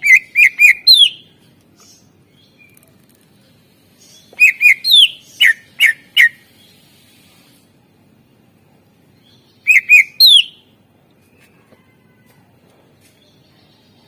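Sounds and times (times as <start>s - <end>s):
bird singing whistled notes: 0.0s - 1.3s, 4.0s - 6.8s, 9.2s - 10.7s.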